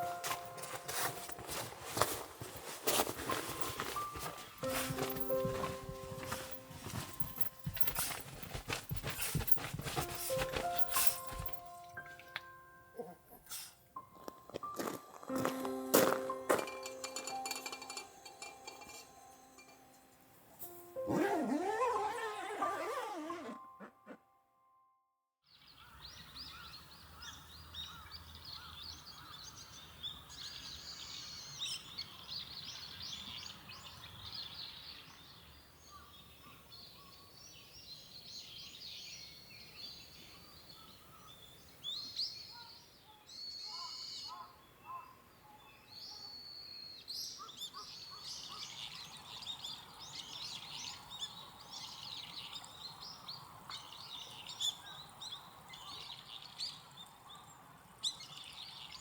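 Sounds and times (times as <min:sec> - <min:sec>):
small birds chirping: 0:03.2 - 0:13.7, 0:25.8 - 0:59.0.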